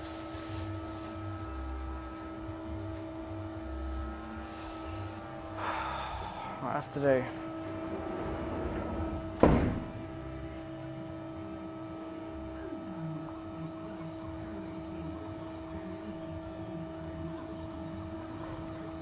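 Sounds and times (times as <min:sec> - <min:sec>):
lathe electrical hum: 0:00.0 - 0:19.0
loud thunk: 0:09.3 - 0:10.1.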